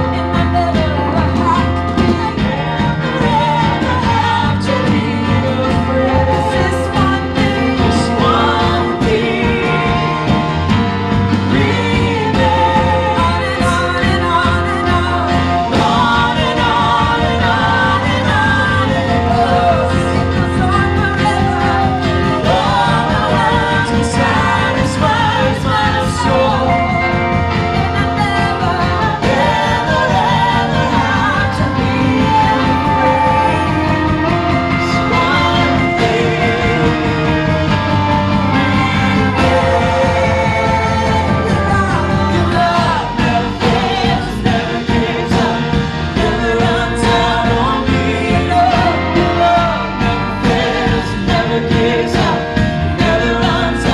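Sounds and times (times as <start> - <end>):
amplified band playing: 0.0 - 53.9
people singing: 0.0 - 53.9.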